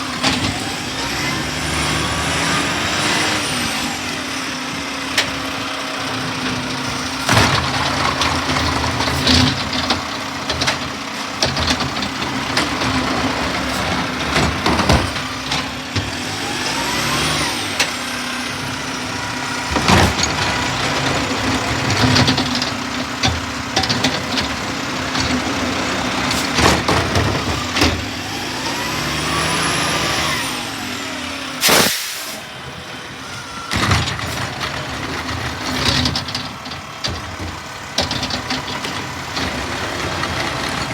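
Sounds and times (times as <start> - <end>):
garbage truck running: 0.0 - 40.9
clanks and knocks: 6.3 - 16.4, 19.6 - 28.2, 33.7 - 40.9
loud blast of noise: 31.6 - 32.5.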